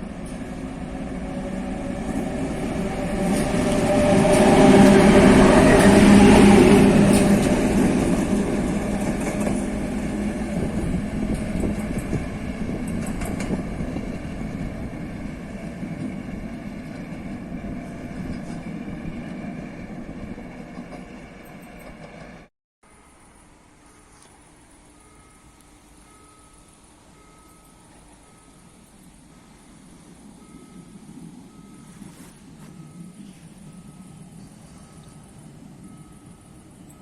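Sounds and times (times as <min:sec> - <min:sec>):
diesel train passing: 0:00.0 - 0:23.1, 0:23.8 - 0:37.0.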